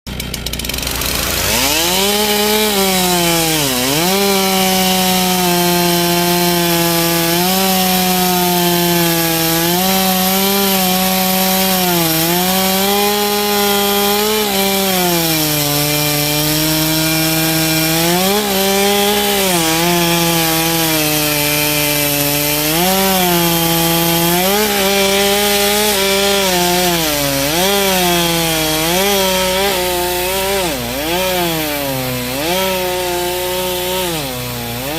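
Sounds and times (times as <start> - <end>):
chainsaw cutting log: 0.1 - 34.9.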